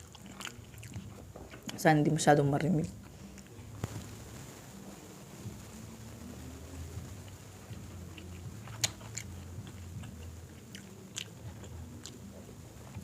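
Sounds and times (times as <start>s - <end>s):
chewing crispy fried chicken: 0.0s - 4.2s, 6.8s - 13.0s
faint low hum: 0.0s - 13.0s.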